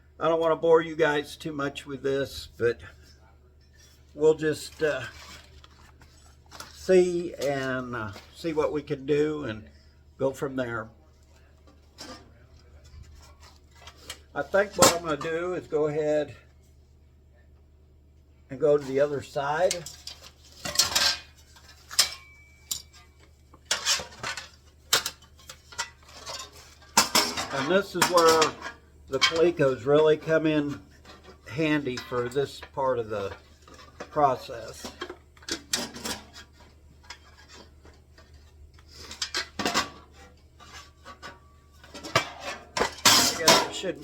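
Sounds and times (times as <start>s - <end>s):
metal parts clinking: 39.1s - 44.0s.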